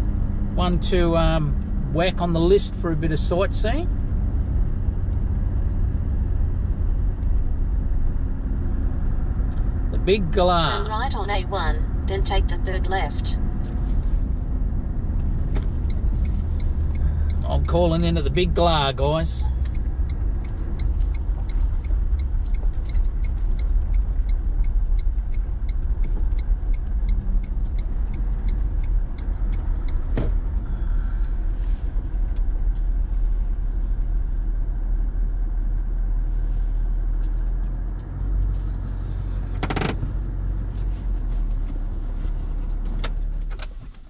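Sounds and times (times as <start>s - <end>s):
vehicle engine rumbling: 0.0s - 44.0s
turn indicator ticking: 14.6s - 33.0s, 37.2s - 40.7s.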